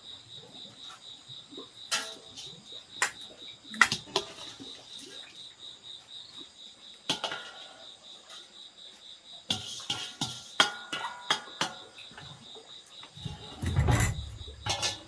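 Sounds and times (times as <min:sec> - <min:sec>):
crickets trilling: 0:00.0 - 0:15.0
sharp knocks and clatter: 0:13.2 - 0:15.0.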